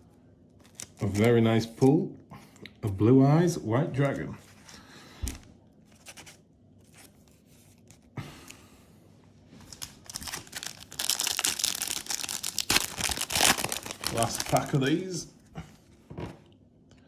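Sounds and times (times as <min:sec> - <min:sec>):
foil wrapper crinkling and tearing: 0:00.6 - 0:01.8, 0:09.6 - 0:15.2.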